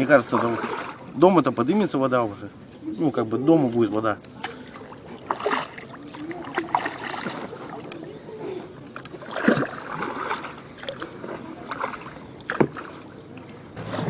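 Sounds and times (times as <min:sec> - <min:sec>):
sharp splashes or knocks: 0:00.0 - 0:01.1, 0:09.0 - 0:13.1
floodwater sloshing: 0:00.0 - 0:14.0.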